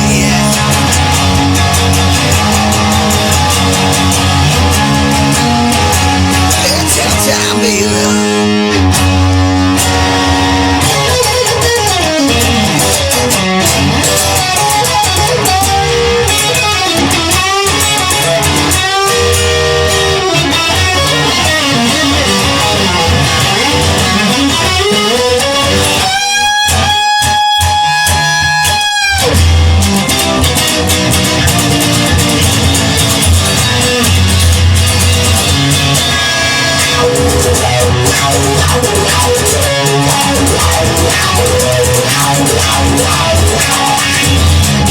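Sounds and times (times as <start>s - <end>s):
electric guitar bending notes: 0.0s - 44.9s
steady bass line: 0.0s - 44.9s.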